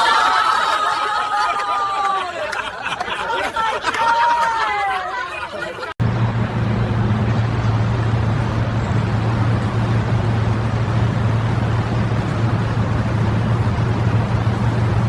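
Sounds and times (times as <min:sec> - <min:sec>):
low mechanical hum: 0:06.0 - 0:15.0.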